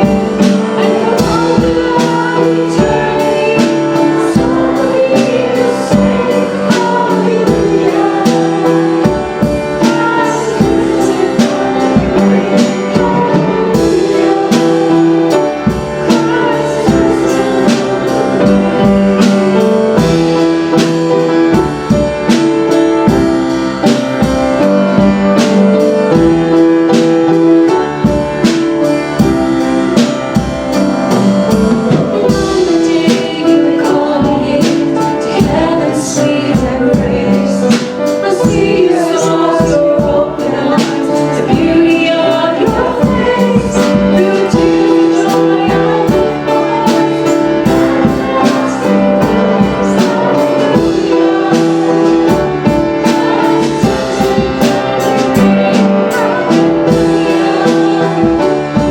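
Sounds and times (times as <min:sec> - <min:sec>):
singing: 0:00.0 - 0:15.5, 0:32.2 - 0:58.9
drums and tambourine beat: 0:00.0 - 0:58.9
guitar: 0:00.0 - 0:58.9
worship band playing: 0:00.0 - 0:58.9.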